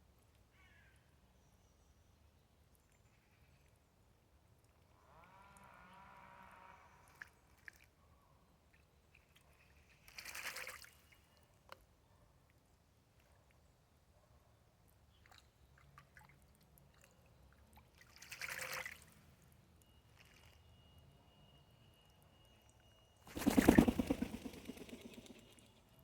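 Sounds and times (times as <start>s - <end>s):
bird wings splashing water: 10.0s - 11.1s, 18.0s - 19.1s, 23.3s - 25.8s.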